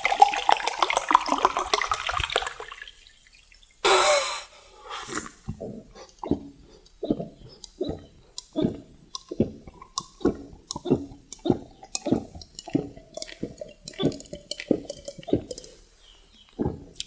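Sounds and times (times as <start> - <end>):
mouth clicks: 3.8 - 17.0
chewing food: 5.1 - 17.0.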